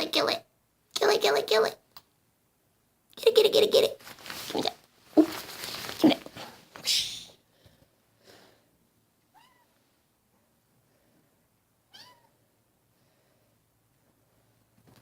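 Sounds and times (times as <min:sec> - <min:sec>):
faint soft noise: 0:01.8 - 0:15.0
kitten mewing: 0:04.5 - 0:05.4, 0:06.0 - 0:07.4, 0:11.9 - 0:12.4.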